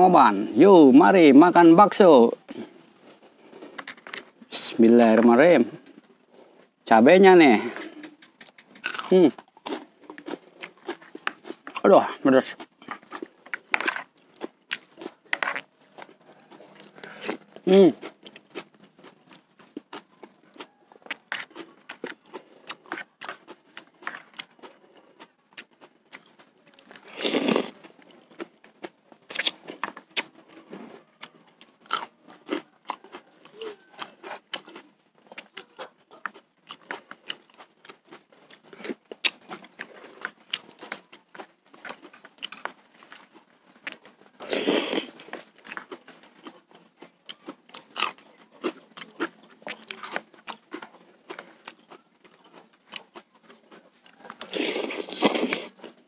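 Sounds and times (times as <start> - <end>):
person chewing and crunching: 0.0 - 56.0
wet mouth clicks: 7.7 - 11.6, 29.3 - 30.4.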